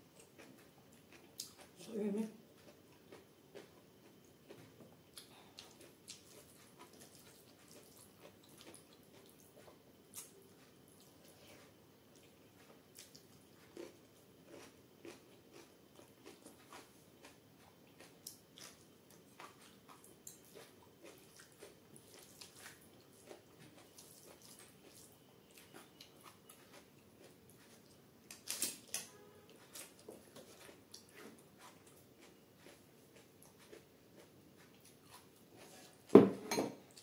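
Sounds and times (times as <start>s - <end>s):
chewing clicks and smacks: 2.6s - 11.1s.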